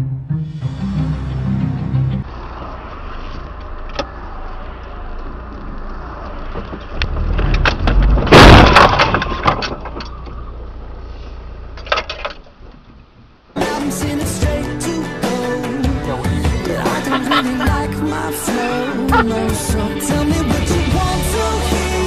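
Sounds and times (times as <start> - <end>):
car road and engine noise: 0.4 - 22.0
sharp cracks and clatter: 2.6 - 10.8, 11.7 - 13.2
loud crash: 7.4 - 10.0.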